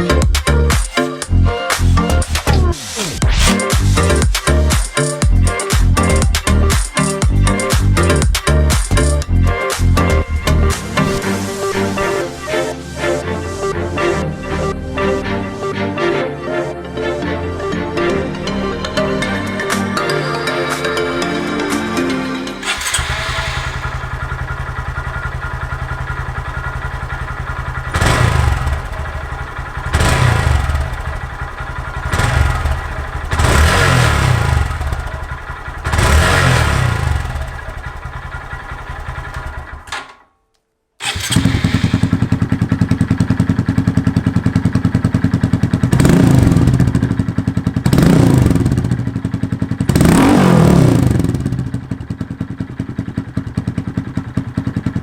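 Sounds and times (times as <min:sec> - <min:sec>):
motorcycle engine idling and revving: 0:00.0 - 0:12.4, 0:22.6 - 0:40.2, 0:41.0 - 0:55.0.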